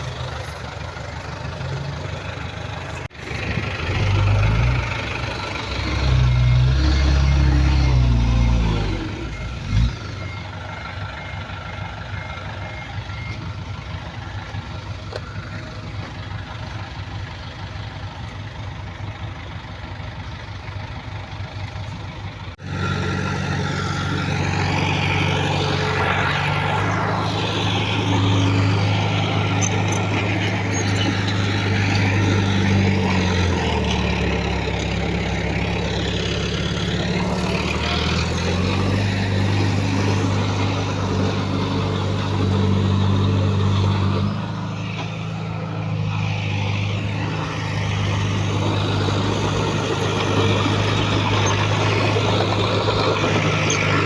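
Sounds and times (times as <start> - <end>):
heavy machinery diesel engines: 0.0 - 54.0
reversing alarm beeping: 5.3 - 15.9, 22.6 - 35.9.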